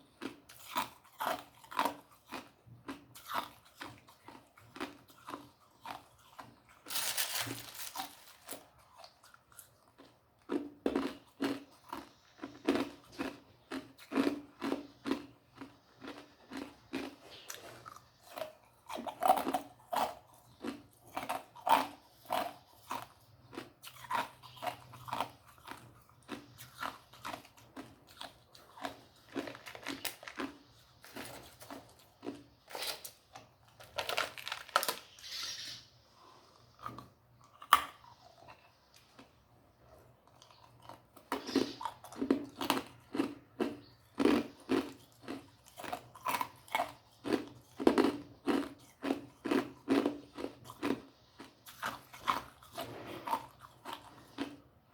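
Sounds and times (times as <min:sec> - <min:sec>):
person crunching ice: 0:03.2 - 0:09.0, 0:18.9 - 0:33.1, 0:33.8 - 0:35.2.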